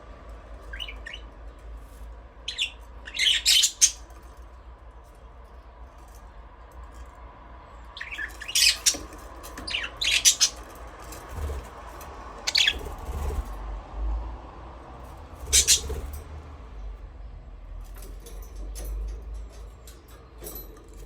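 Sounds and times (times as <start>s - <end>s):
budgerigars chirping and squawking: 0.7s - 1.3s, 2.4s - 4.1s, 8.0s - 10.7s, 12.4s - 13.5s, 15.4s - 16.1s.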